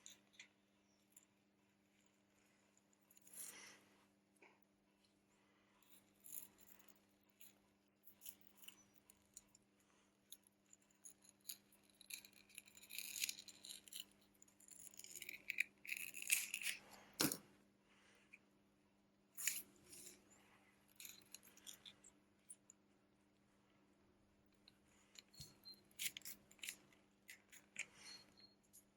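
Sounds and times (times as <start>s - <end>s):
small tools clicking and scraping: 10.3s - 17.4s, 19.4s - 20.2s, 20.9s - 22.7s, 24.6s - 28.9s.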